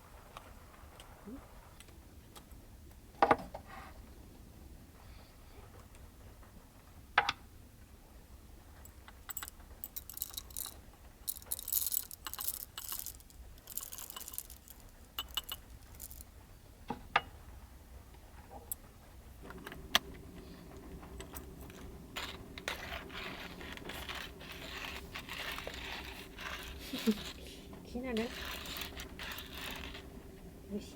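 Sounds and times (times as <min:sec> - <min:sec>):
low steady hum: 0:09.2 - 0:30.9
small hard objects clicking: 0:09.3 - 0:16.3, 0:21.0 - 0:27.5, 0:28.1 - 0:30.2
rustling: 0:09.4 - 0:16.4, 0:18.3 - 0:30.9.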